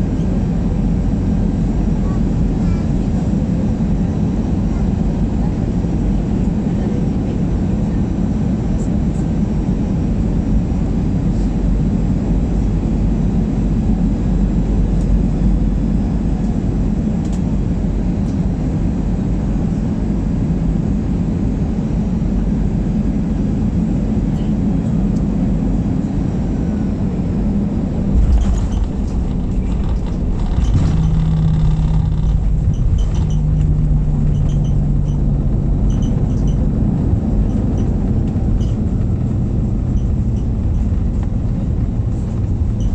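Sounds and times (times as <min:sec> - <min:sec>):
airliner engine rumble: 0:00.0 - 0:42.9
low drone: 0:21.6 - 0:42.9.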